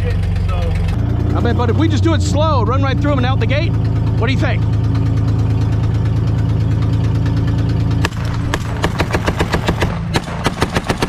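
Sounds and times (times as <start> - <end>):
engine running: 0.0 - 11.0
machine gun firing: 8.0 - 11.0.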